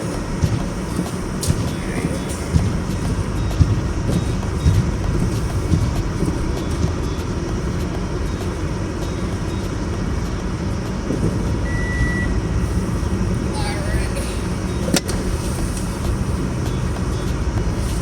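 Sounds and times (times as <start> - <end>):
car engine and tyres rumbling: 0.0 - 18.0
short high beep: 11.7 - 12.4.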